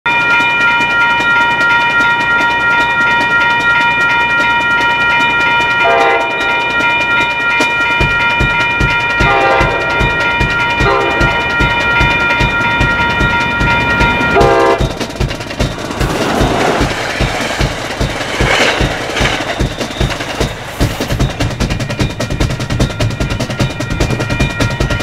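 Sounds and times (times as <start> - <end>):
train coaches rushing past: 0.1 - 25.0
steady drum beat: 0.4 - 25.0
train horn: 5.8 - 6.8, 9.2 - 10.0, 10.8 - 11.4, 14.4 - 15.0.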